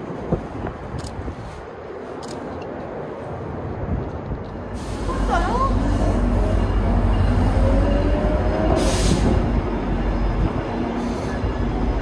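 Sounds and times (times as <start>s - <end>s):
train low rumble: 0.0s - 12.0s
burst of hiss: 8.8s - 9.4s.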